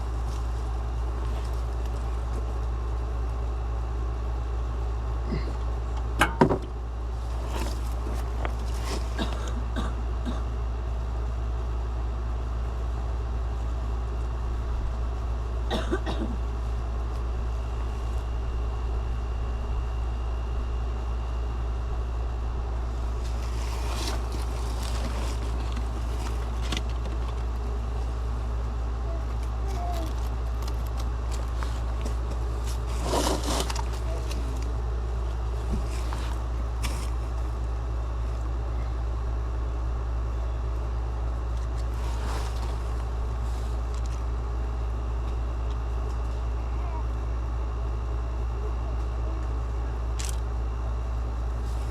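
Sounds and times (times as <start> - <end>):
vehicle low rumble: 0.0 - 51.9.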